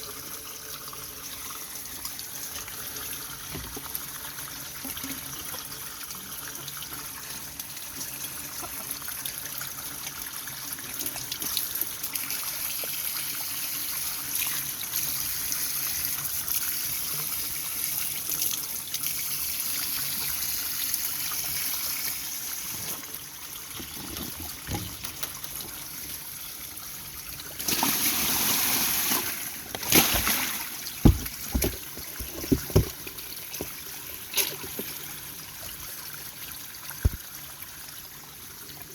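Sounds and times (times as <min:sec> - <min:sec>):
water trickling: 0:18.8 - 0:38.9
sharp knocks: 0:31.0 - 0:33.0.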